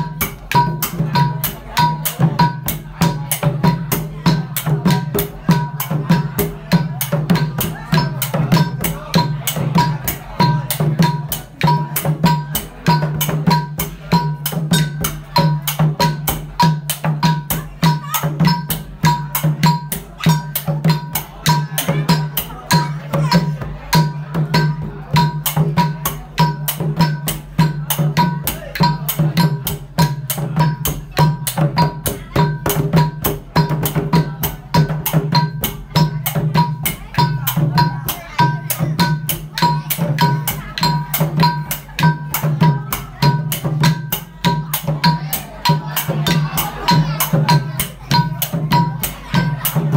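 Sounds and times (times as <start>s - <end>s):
fast drum rhythm: 0.0s - 49.9s.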